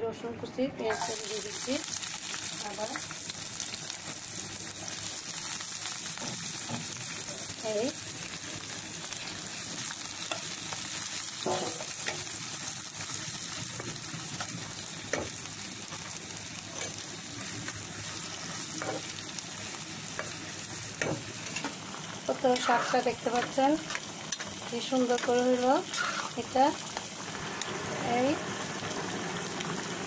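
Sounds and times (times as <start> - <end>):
garlic and onion sizzling in oil: 0.8 - 30.0
utensil scraping pan: 22.5 - 23.2, 25.9 - 26.4.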